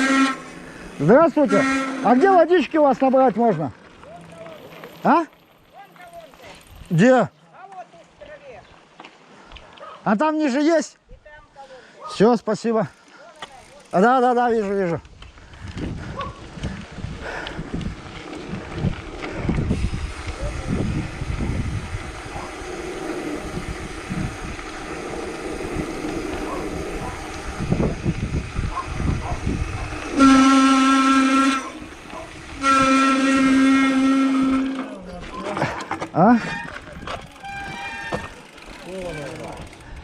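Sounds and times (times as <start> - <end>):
horn blasts: 0.0 - 3.0, 30.0 - 35.0, 37.4 - 38.4
wind buffeting microphone: 15.0 - 35.4, 39.4 - 40.0.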